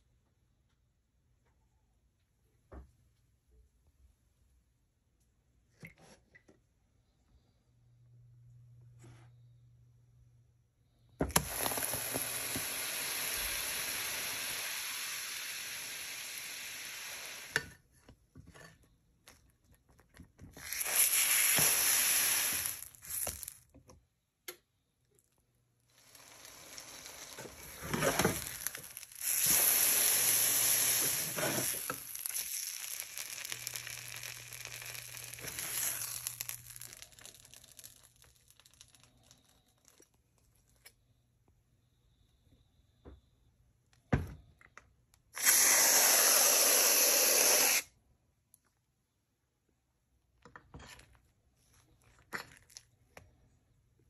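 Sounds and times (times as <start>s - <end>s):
food sizzling in a frying pan: 11.3s - 17.6s, 20.6s - 23.5s, 25.9s - 39.0s.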